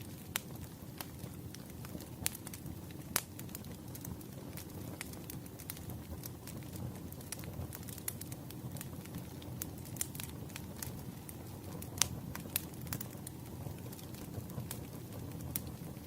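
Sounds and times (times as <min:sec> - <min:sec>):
firewood crackling and popping: 0:00.0 - 0:16.0
low rumble of flames: 0:00.0 - 0:16.0.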